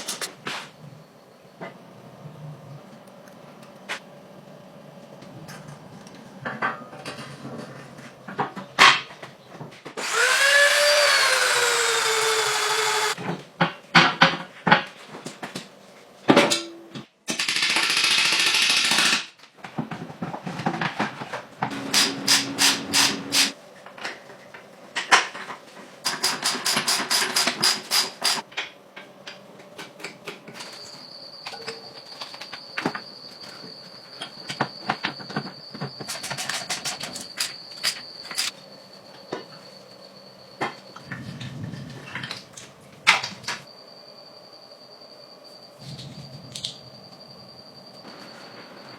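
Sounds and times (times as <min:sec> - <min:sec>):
electric power tool spinning: 0:10.0 - 0:13.2
high thin whine: 0:21.6 - 0:23.6.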